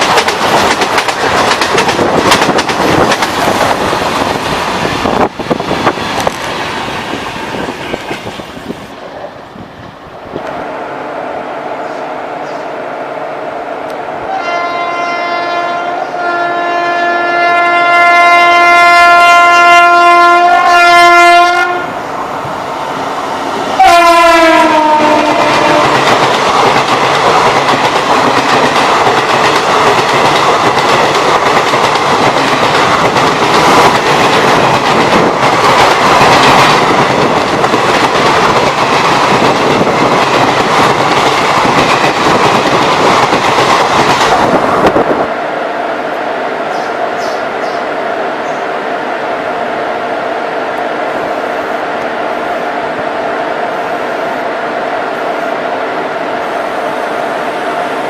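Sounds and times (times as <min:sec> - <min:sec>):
train rushing past: 0:00.0 - 0:58.0
locomotive horn blast: 0:14.2 - 0:22.0, 0:23.8 - 0:26.0.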